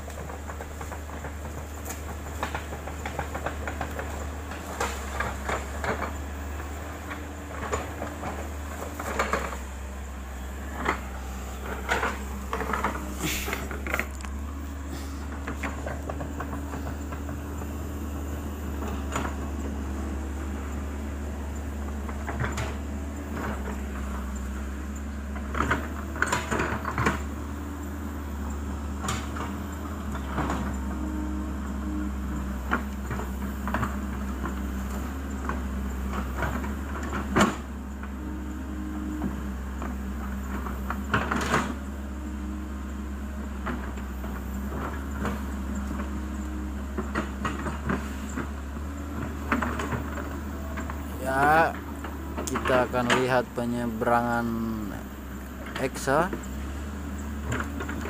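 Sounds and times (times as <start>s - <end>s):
excavator diesel engine running: 0.0s - 58.0s
metal clanks and knocks: 7.0s - 17.3s.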